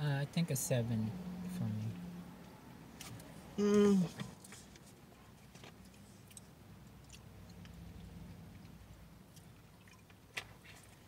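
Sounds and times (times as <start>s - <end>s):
chewing and swallowing: 4.1s - 11.0s.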